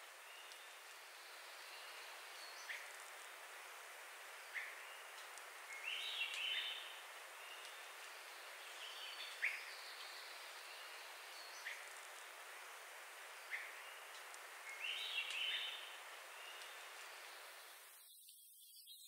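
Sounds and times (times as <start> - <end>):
steady background hiss: 0.0 - 19.0
high bird twittering song: 4.4 - 11.9, 13.4 - 19.0.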